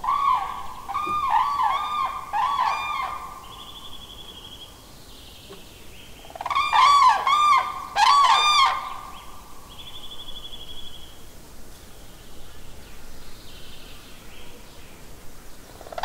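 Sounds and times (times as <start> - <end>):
bird calling repeated notes: 0.0 - 4.4.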